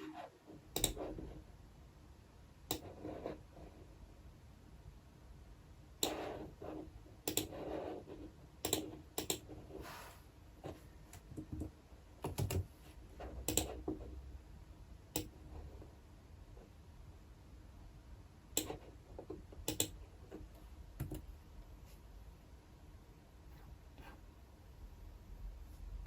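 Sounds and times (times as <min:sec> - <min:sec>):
typing on computer keyboard: 0:00.8 - 0:01.1, 0:11.4 - 0:12.7, 0:19.6 - 0:20.0.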